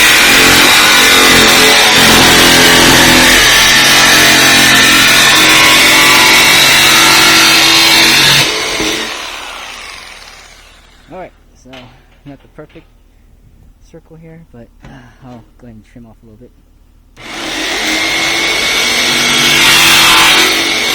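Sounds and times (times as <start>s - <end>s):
jigsaw cutting metal: 0.0s - 11.1s, 17.2s - 20.9s.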